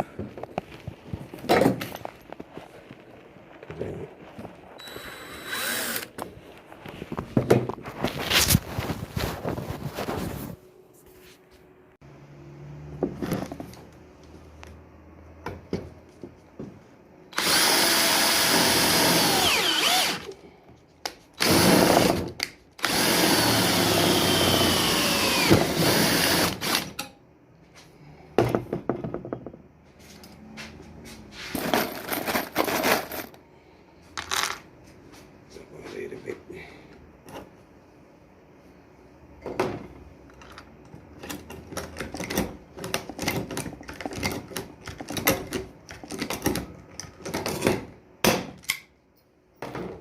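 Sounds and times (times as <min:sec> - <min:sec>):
electric power drill: 0:04.8 - 0:06.2, 0:17.3 - 0:20.4, 0:21.4 - 0:22.2, 0:22.8 - 0:27.0.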